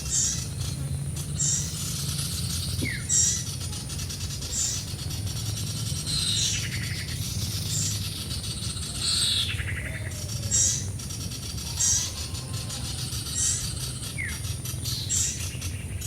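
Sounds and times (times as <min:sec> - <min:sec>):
low bird chirping: 0:00.0 - 0:16.0
steady low hum: 0:00.0 - 0:16.0.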